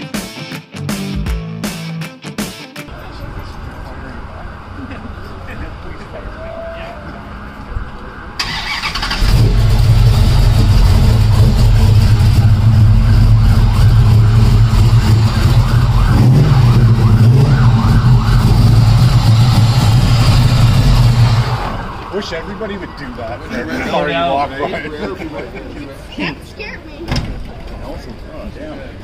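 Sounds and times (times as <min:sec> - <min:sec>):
car engine idling with deep rumble: 0:09.2 - 0:21.5.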